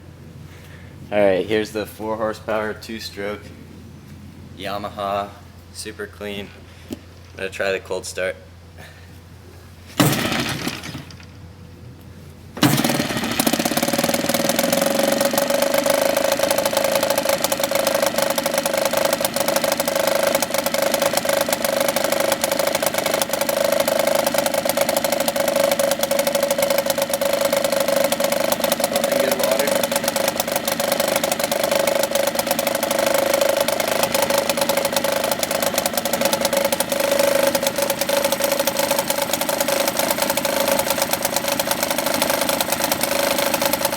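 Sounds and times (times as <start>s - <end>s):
outboard motor starting and running: 9.9s - 11.6s, 12.3s - 43.9s.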